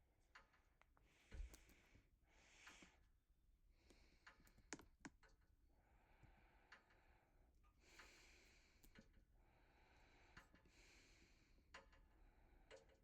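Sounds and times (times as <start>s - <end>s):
faint sharp clicks: 8.0s - 9.2s.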